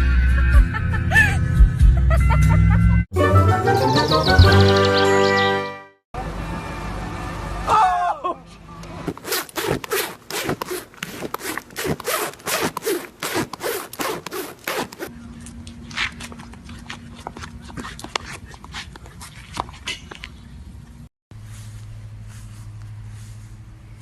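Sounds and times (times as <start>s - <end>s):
rapid rasping scrapes: 9.1s - 15.1s.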